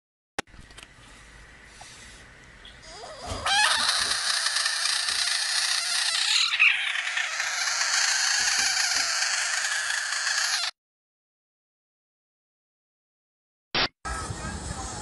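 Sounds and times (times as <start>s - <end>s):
frog screaming: 2.8s - 10.8s.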